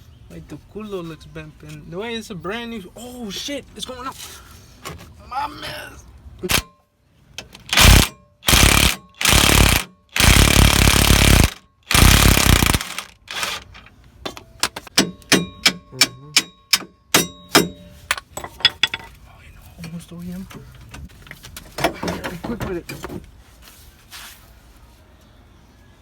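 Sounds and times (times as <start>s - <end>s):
impact wrench bursts: 7.7s - 13.7s
metal tools clinking: 13.7s - 19.2s.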